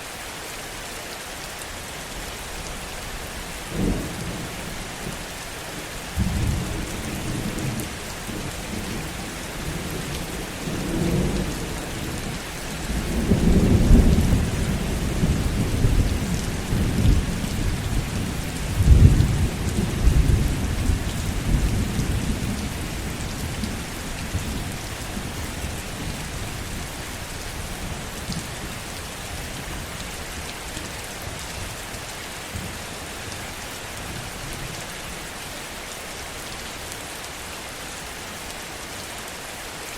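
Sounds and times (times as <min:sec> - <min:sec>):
heavy rain: 0:00.0 - 0:39.9
thunder rumbling: 0:06.2 - 0:26.9.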